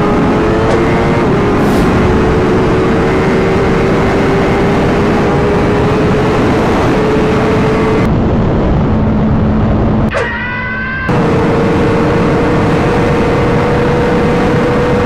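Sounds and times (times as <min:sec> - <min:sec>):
motorcycle engine at high revs: 0:00.0 - 0:08.1, 0:11.1 - 0:15.0.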